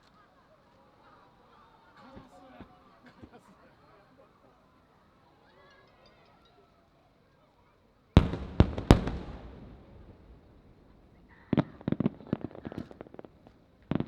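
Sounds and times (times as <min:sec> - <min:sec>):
crackling firework pops: 0:08.2 - 0:14.0
firework shells bursting: 0:08.2 - 0:14.0.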